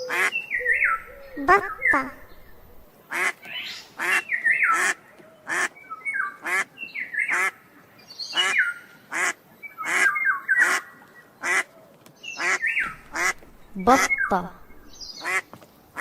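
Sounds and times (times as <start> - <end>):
high gliding chirping calls: 0.0 - 2.9, 12.4 - 15.3
ducks quacking: 0.0 - 3.4, 12.4 - 16.0.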